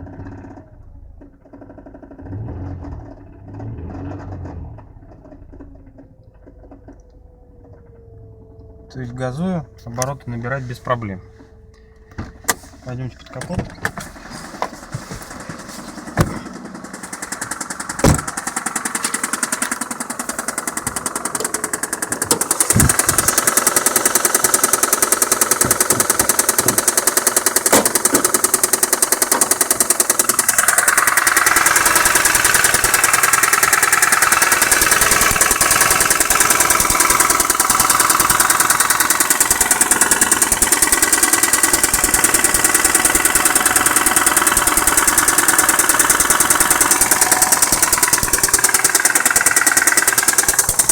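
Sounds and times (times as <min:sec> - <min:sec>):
car engine idling with knock: 0:00.0 - 0:50.9
sharp clicks: 0:17.2 - 0:50.9.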